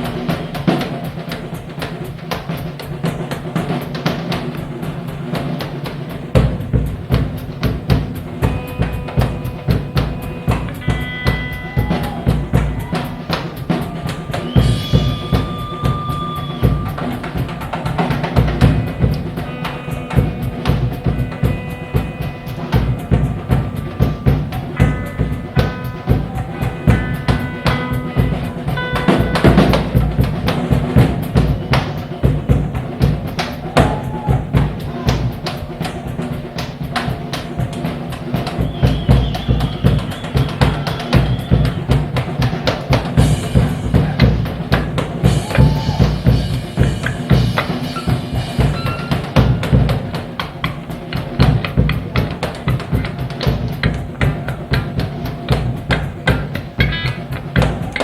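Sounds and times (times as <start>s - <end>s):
drum kit beat: 0.0s - 58.0s
lead guitar bending notes: 8.0s - 13.3s, 13.9s - 31.2s.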